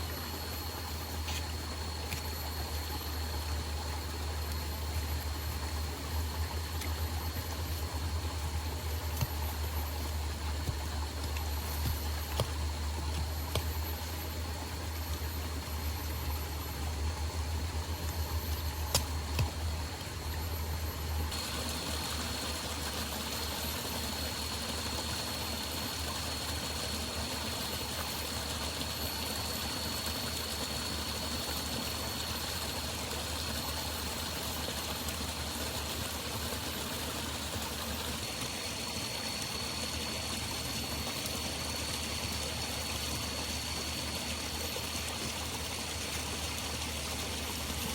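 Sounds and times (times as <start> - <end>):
river water flowing: 0.0 - 47.9.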